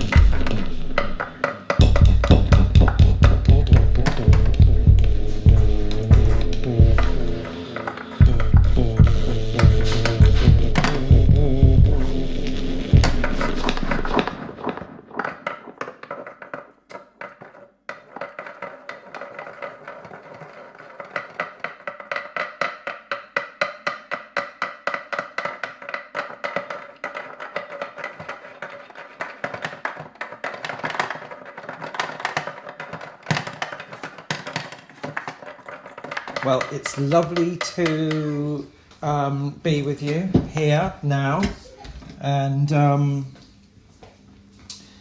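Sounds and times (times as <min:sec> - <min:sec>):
rhythmic tapping with ringing tone: 0:00.0 - 0:14.4
loud deep sound: 0:01.8 - 0:07.5, 0:08.2 - 0:14.2.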